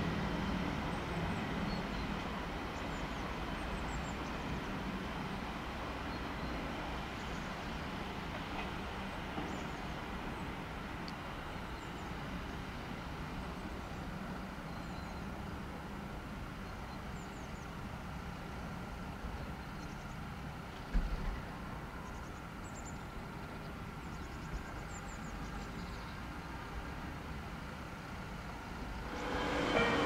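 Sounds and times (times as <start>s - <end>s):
train rail rumble: 26.4s - 30.0s.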